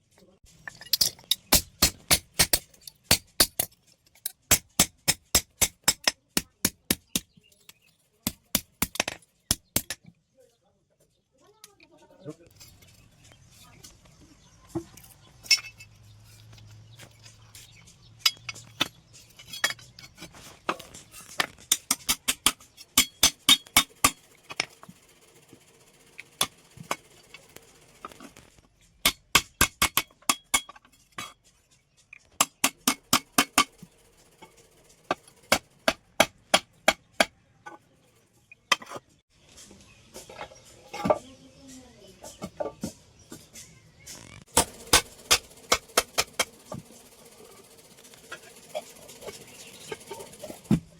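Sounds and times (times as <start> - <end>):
hammer striking steel on anvil: 0.9 - 3.7, 4.3 - 7.3, 21.7 - 24.2, 29.0 - 30.8, 32.4 - 33.8.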